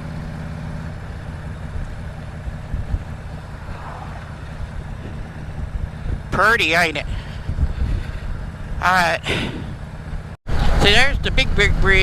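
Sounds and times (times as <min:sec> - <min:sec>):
motorcycle engine running: 0:00.0 - 0:12.0
wind rushing: 0:02.7 - 0:09.8.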